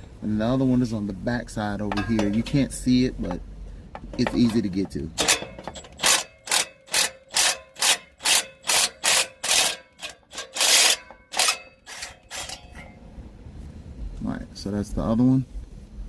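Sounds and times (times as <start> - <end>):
ratchet wrench rasping: 4.2 - 12.9.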